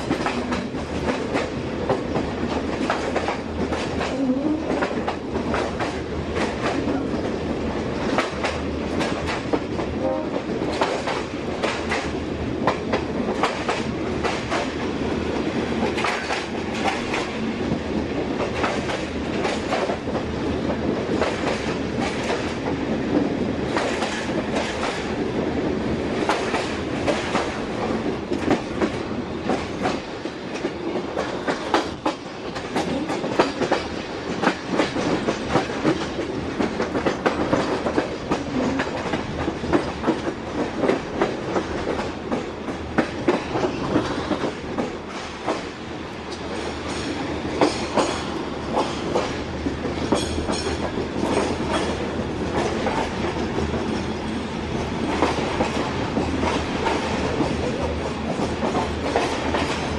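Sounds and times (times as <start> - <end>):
train carriage running noise: 0.0 - 59.9
wheels clicking over rail joints: 46.3 - 59.9.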